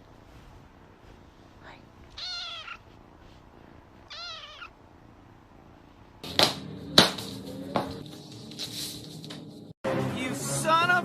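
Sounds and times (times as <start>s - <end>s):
cat meowing: 2.1s - 2.9s, 4.0s - 4.8s.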